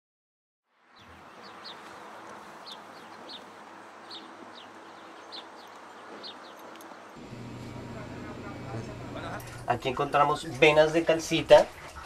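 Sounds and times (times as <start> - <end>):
bird chirping: 0.9 - 9.6.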